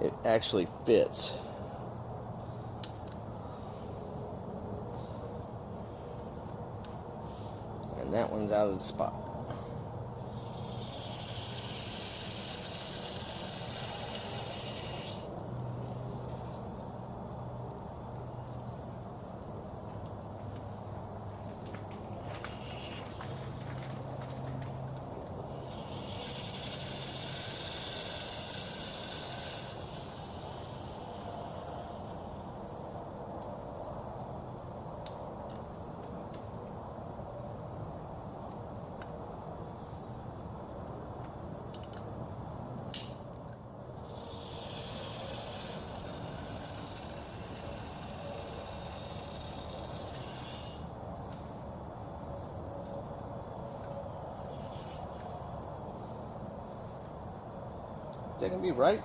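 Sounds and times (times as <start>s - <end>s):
low background hum: 0.0s - 59.0s
steady hiss: 7.2s - 16.6s, 25.4s - 34.0s, 44.0s - 52.5s.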